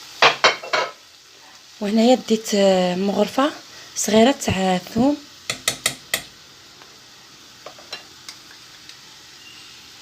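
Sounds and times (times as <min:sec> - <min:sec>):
vegetables sizzling in oil: 0:00.0 - 0:10.0
utensil tapping a pan: 0:05.5 - 0:06.3.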